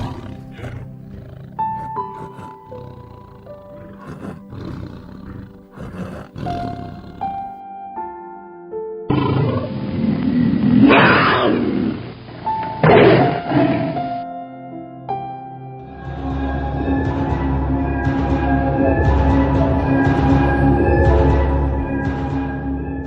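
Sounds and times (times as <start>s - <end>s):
big cat growling and roaring: 0.0s - 7.6s, 9.1s - 12.2s, 12.8s - 14.1s
background music: 0.0s - 23.0s.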